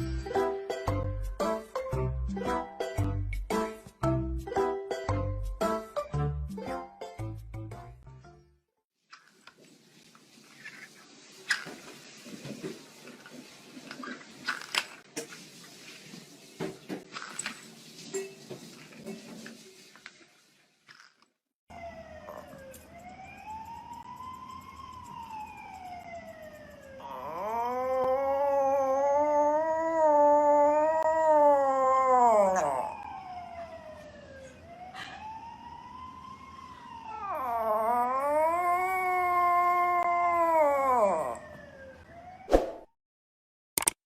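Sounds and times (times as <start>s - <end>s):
wailing siren: 21.7s - 42.5s
dog howling: 27.0s - 33.2s, 37.1s - 41.6s.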